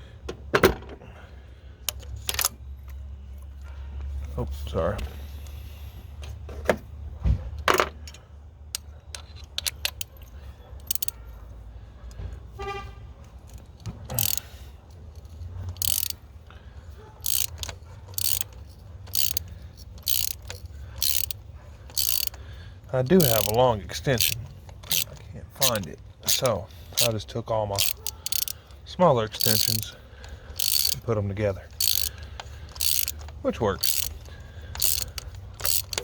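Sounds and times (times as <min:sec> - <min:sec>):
hand ratchet clicking: 0:08.0 - 0:10.2, 0:10.8 - 0:11.2, 0:13.3 - 0:16.3, 0:17.2 - 0:36.0.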